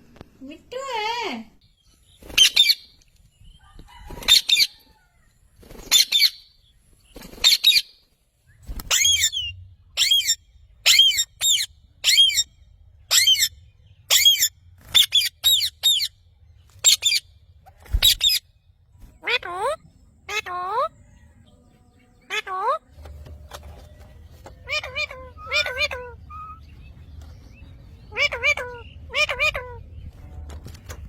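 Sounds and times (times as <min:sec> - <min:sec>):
parrot screeching: 0:24.6 - 0:26.6, 0:28.1 - 0:29.8.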